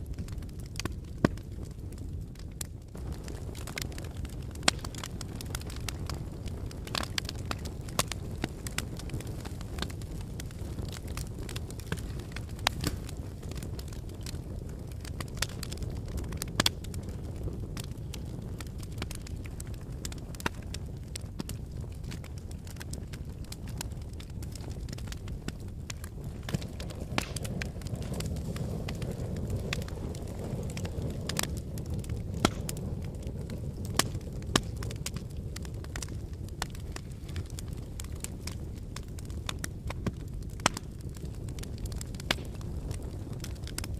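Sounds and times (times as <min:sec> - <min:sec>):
fire crackling and popping: 0:00.0 - 0:43.9
fire rumbling in fireplace: 0:00.0 - 0:43.9.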